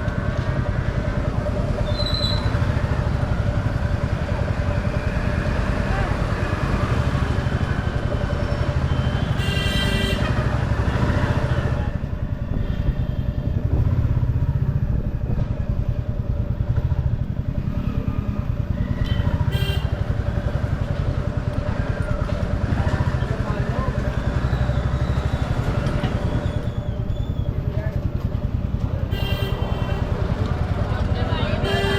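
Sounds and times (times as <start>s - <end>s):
motorcycle engine running: 0.0s - 31.9s
street traffic: 0.0s - 31.9s
short vehicle horns: 9.1s - 10.5s, 19.0s - 20.0s, 29.1s - 30.0s, 31.6s - 31.9s.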